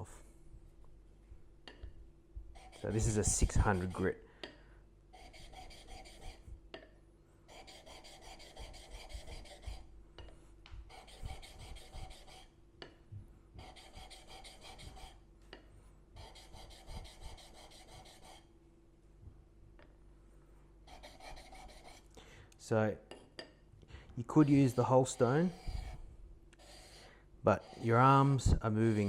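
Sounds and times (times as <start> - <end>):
chisel scraping on sharpening plate: 24.3 - 26.0, 26.6 - 28.2.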